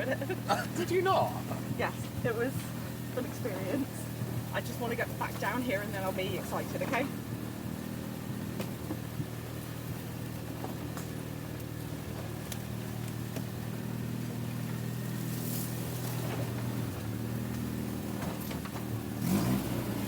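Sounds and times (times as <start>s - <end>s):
car engine running at low revs: 0.0s - 20.0s.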